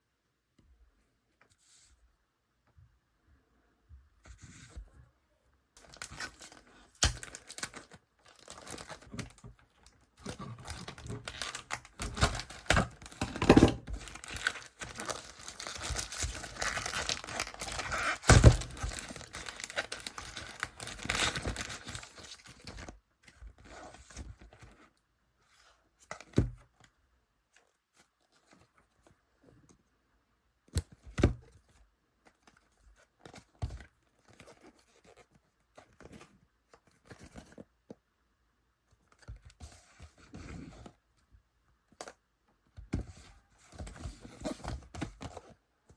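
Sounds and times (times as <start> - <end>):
packaging being torn and crinkled: 5.8 - 22.8.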